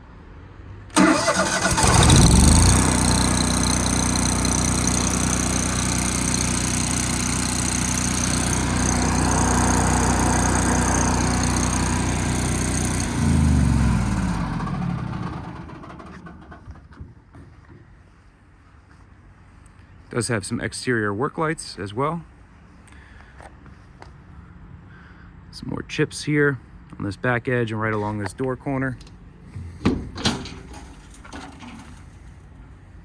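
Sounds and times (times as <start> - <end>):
generator engine starting and running: 0.9 - 18.2, 29.1 - 32.9.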